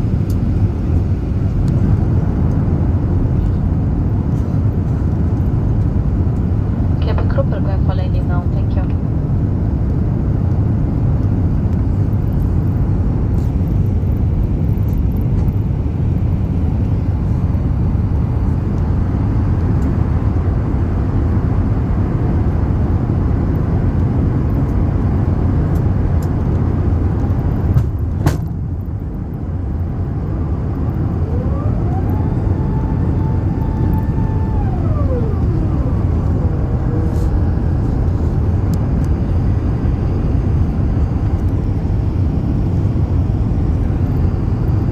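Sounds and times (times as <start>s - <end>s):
airliner cabin engine rumble: 0.0s - 44.9s
rising whine: 9.6s - 44.9s.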